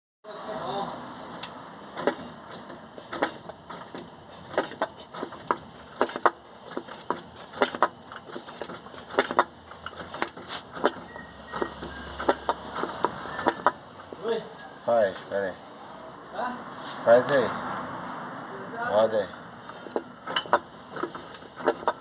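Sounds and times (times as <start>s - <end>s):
diesel engine with knocking: 1.2s - 14.4s, 18.9s - 22.0s.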